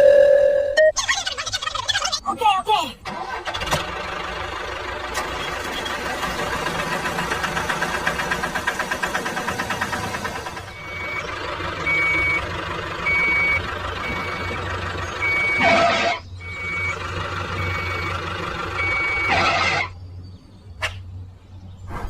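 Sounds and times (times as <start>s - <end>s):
diesel engine running: 2.6s - 21.2s
reversing alarm beeping: 10.6s - 19.9s.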